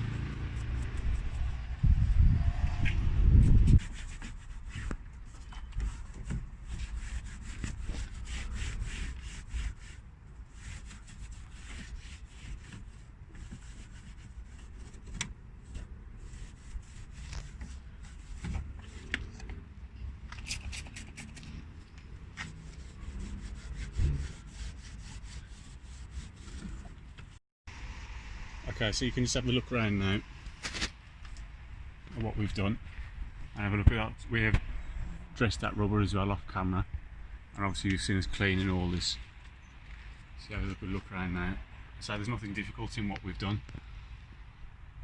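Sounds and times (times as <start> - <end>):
brush scrubbing wet plastic: 3.6 - 19.1, 20.4 - 21.5.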